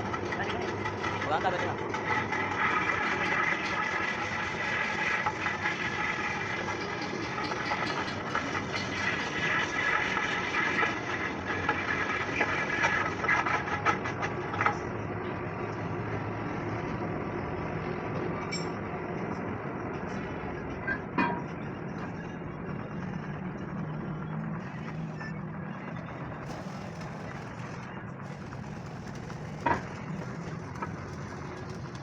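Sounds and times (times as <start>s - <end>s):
steady engine-like hum: 0.0s - 32.0s
metal clattering and clanking: 6.4s - 10.3s, 24.6s - 32.0s.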